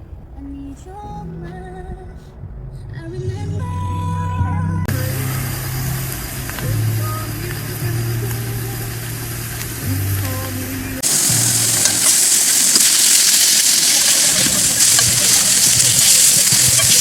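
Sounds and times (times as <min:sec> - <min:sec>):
music with low bass notes: 0:00.0 - 0:17.0
loud sizzling hiss: 0:04.9 - 0:17.0.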